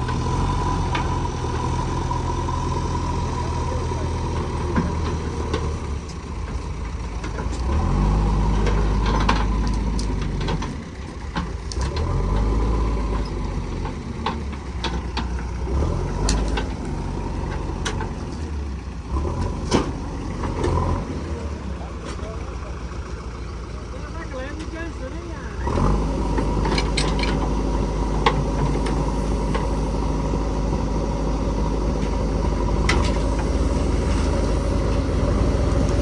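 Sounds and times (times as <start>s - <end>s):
vehicle engines revving: 0.0s - 36.0s
sharp clicks and knocks: 32.0s - 36.0s.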